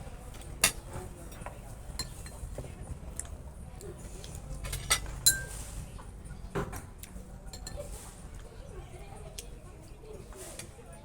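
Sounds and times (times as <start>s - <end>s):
cutlery and dishes clinking: 0.4s - 2.7s, 4.6s - 5.8s, 7.5s - 8.2s.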